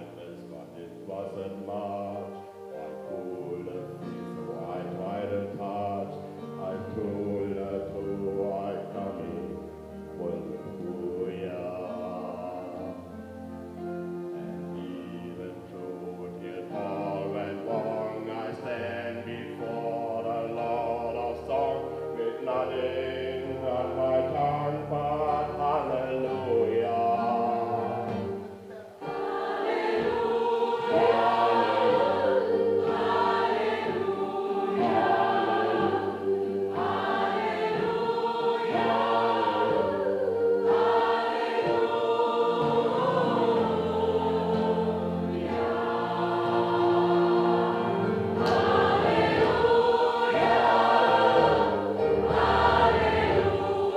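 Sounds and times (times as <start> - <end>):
gospel choir singing: 0.0 - 53.9.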